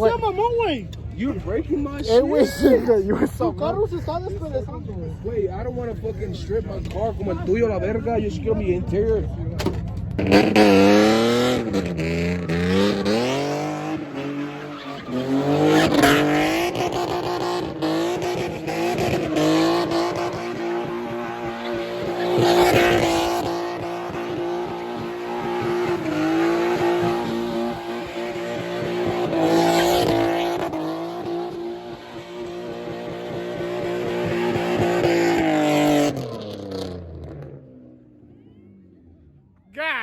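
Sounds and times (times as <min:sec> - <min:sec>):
car engine revving: 0:05.5 - 0:39.6
tyres squealing: 0:14.1 - 0:15.8.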